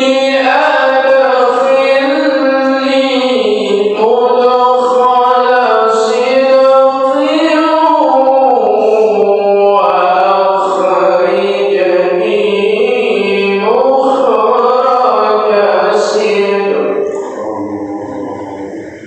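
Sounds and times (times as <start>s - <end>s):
man chanting melodic recitation: 0.0s - 19.0s.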